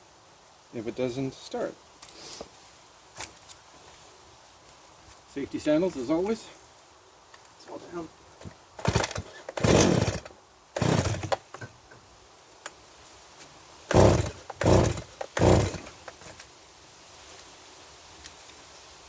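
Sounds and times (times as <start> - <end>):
chainsaw engine turning over: 8.4 - 11.8, 13.9 - 16.4
chainsaw starter cord yanks: 8.4 - 11.8, 13.9 - 16.4.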